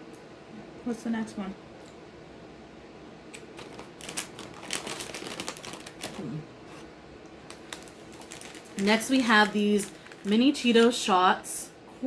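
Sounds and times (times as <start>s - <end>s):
plastic packaging crinkling: 3.4s - 6.8s, 7.4s - 11.2s.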